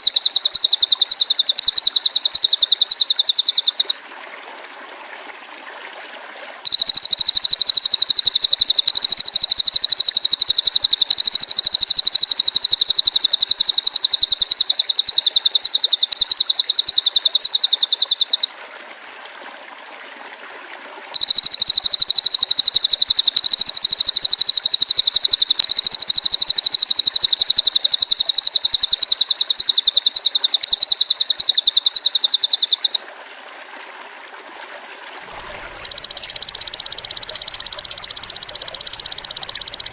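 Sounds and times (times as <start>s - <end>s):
high-pitched buzzing bird trill: 0.0s - 4.0s, 6.7s - 18.5s, 21.2s - 33.0s, 35.3s - 39.9s.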